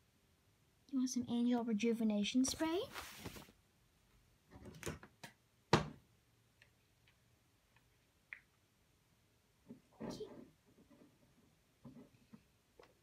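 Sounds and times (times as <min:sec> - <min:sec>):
rustling and handling noises: 0:02.3 - 0:03.6.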